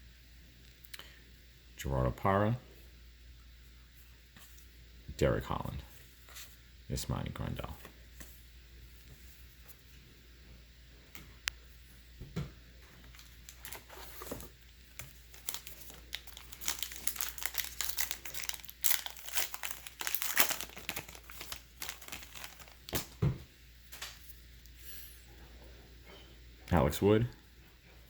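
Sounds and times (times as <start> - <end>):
card pack wrapper tearing: 13.1 - 23.2.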